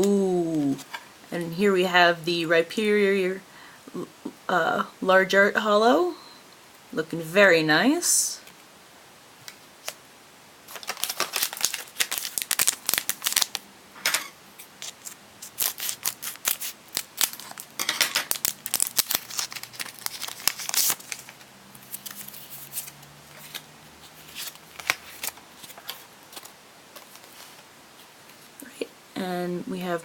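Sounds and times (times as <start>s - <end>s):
foil packet crinkling and tearing: 10.7s - 13.6s, 14.6s - 27.6s.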